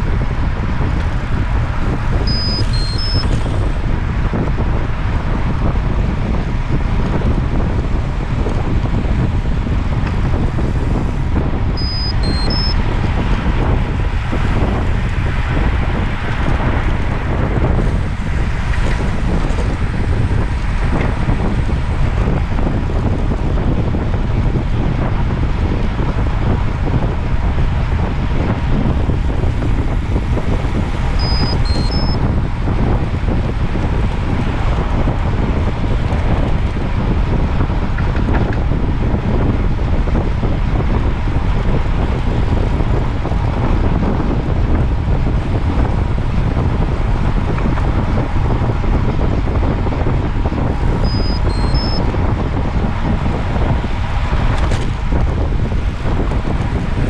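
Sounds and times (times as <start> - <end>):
wind rumbling on microphone: 0.0 - 57.0
short high electronic beeps: 2.3 - 3.4, 11.8 - 12.8, 31.2 - 32.2, 51.0 - 52.0.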